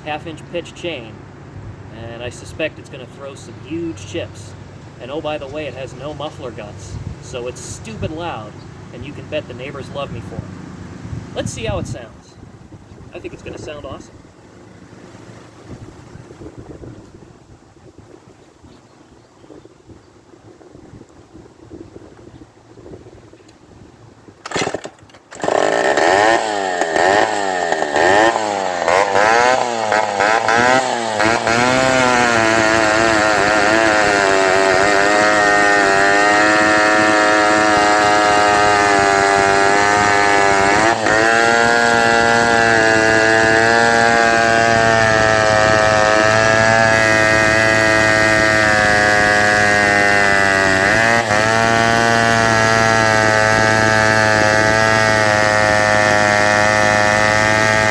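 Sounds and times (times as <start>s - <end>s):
chainsaw revving loudly: 24.5s - 57.9s.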